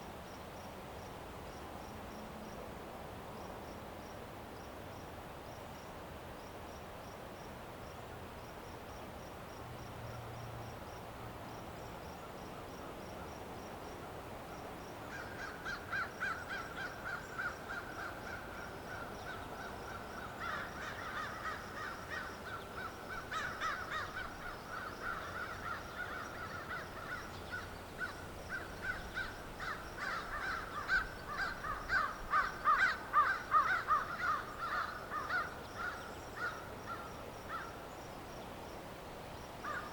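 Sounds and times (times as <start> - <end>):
faint insect chirping: 0.0 - 39.9
crow cawing: 15.1 - 37.8, 39.6 - 39.9.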